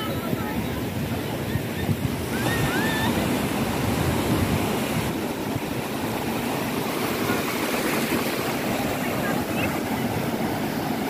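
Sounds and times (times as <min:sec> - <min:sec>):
waves breaking on a beach: 0:00.0 - 0:11.0.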